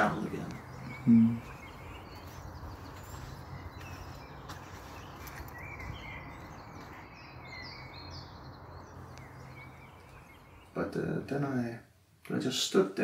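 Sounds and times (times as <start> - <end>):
small birds chirping: 0.0 - 13.0
background hiss: 8.9 - 13.0.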